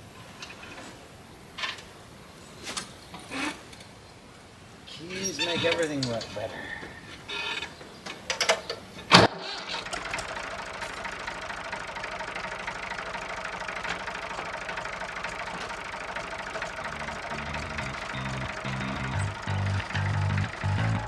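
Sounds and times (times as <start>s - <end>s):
tractor engine starting and idling: 0.0s - 21.0s
background music: 16.9s - 21.0s.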